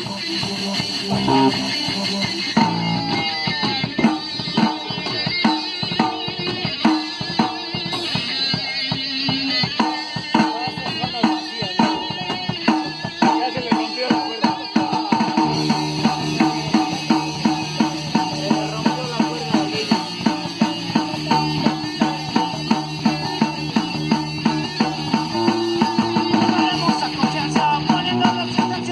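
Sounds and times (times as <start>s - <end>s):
drums beating: 0.0s - 28.9s
guitar: 0.0s - 28.9s
low bass line: 1.1s - 1.7s.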